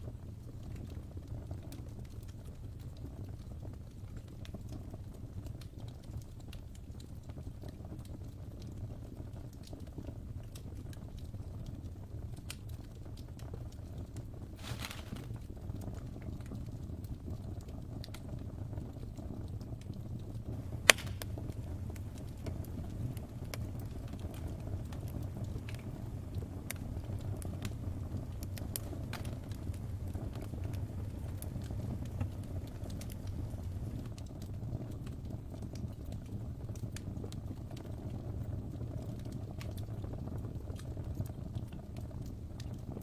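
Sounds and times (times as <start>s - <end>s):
wood fire crackling: 0.0s - 43.0s
loud sharp pop: 20.8s - 21.4s.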